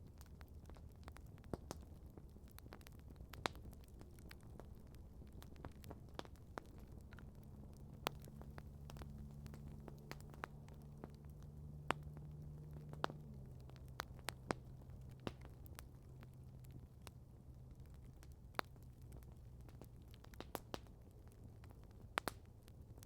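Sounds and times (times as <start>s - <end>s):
campfire crackling: 0.0s - 23.0s
low steady hum: 1.6s - 23.0s.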